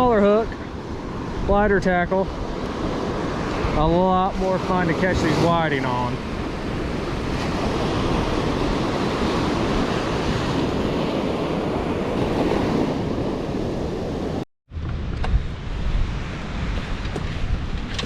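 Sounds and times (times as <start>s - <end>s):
surf breaking on beach: 0.0s - 14.4s
wind buffeting microphone: 0.0s - 18.0s.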